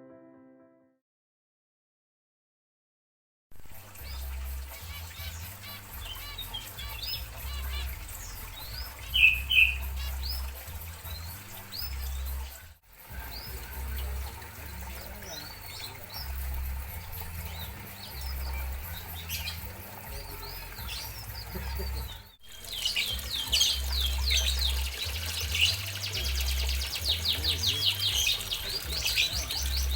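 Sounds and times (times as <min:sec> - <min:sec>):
finches chirping: 0:04.0 - 0:29.9
loud nasal bird calls: 0:04.1 - 0:12.4, 0:17.0 - 0:29.9.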